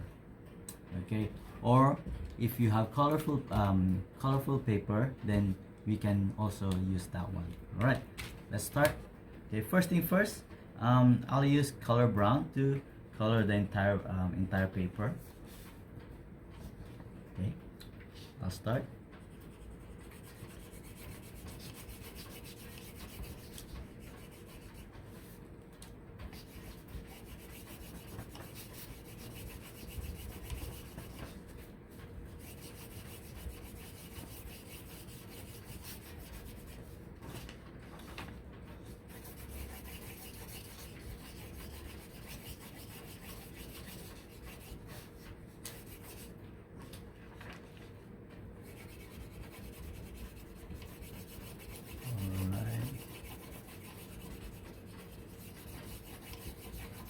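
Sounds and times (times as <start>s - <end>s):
crayon rubbing on paper: 19.5s - 25.4s, 26.4s - 31.6s, 32.3s - 37.0s, 39.1s - 46.3s, 48.6s - 57.0s.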